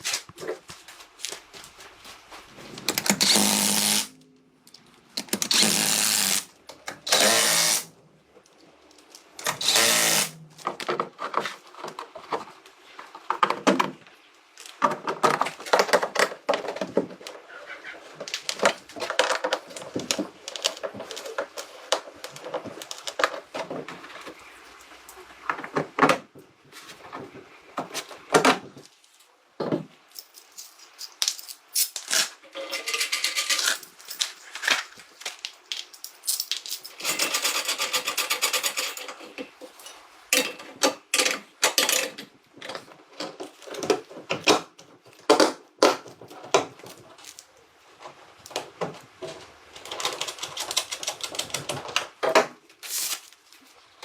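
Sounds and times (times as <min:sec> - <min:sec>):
hand tools clicking and clattering: 0:30.1 - 0:44.6.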